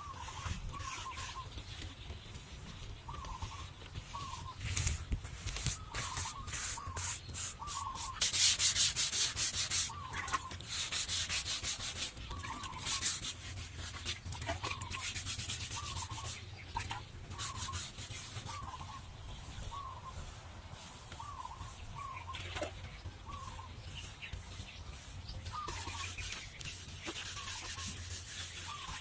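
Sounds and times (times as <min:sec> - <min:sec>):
scraping strokes on a surface: 0:00.0 - 0:29.0.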